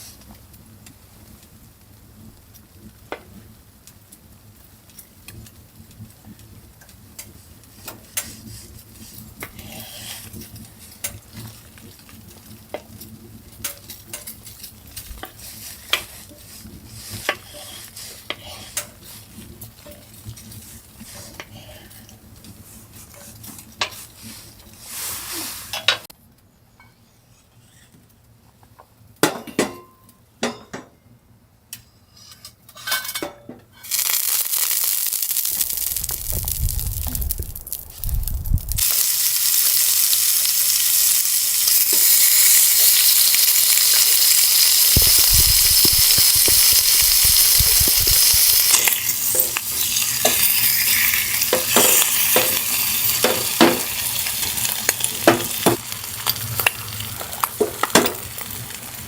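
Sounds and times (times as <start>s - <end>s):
food sizzling in a hot pan: 1.0s - 26.0s, 33.8s - 59.0s
stirring clicks and scrapes: 6.8s - 24.8s, 33.8s - 39.0s, 41.0s - 59.0s
low rumble: 35.6s - 38.8s
cookware clinking: 51.5s - 54.0s, 55.2s - 55.8s.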